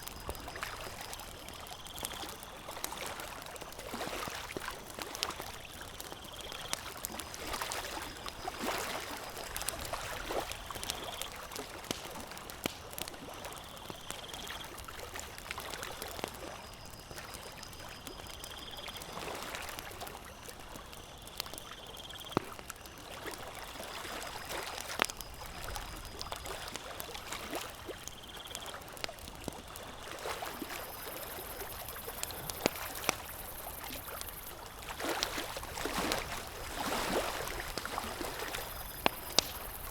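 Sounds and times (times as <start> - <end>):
campfire crackling and popping: 0.0 - 39.9
gently moving water: 29.6 - 39.9.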